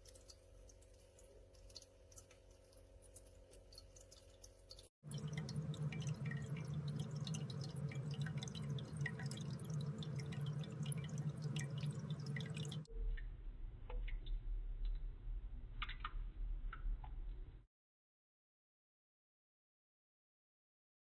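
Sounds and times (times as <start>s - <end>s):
water dripping into bowl: 0.0s - 17.4s
pump humming: 5.0s - 13.3s.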